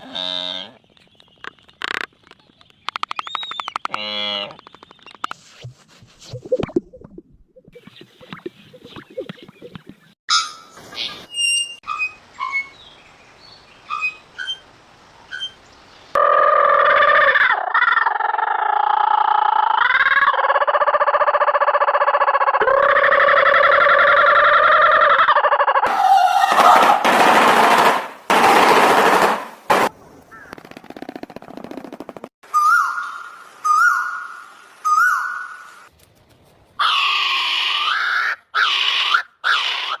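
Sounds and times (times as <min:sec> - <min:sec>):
bird chirping: 0:00.8 - 0:05.4, 0:07.7 - 0:16.2
dipping and rising bird call: 0:02.6 - 0:05.3, 0:07.6 - 0:10.6, 0:13.8 - 0:27.1, 0:30.3 - 0:35.9.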